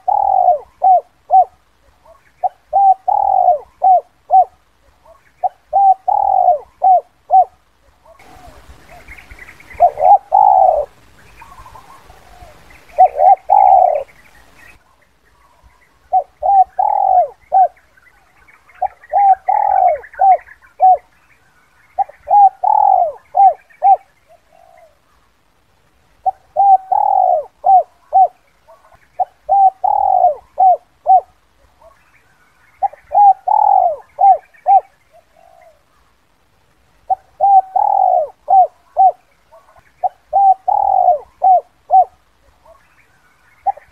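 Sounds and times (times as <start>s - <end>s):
dove cooing: 0.0s - 21.2s, 22.0s - 25.2s, 26.2s - 32.0s, 32.7s - 36.1s, 37.0s - 42.9s, 43.5s - 43.9s.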